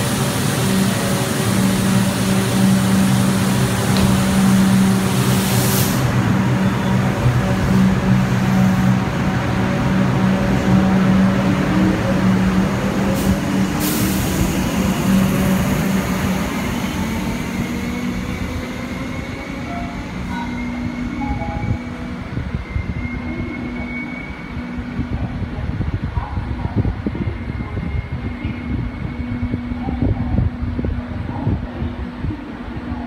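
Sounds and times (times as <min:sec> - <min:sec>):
wheels rumbling on rails: 0:00.0 - 0:23.7.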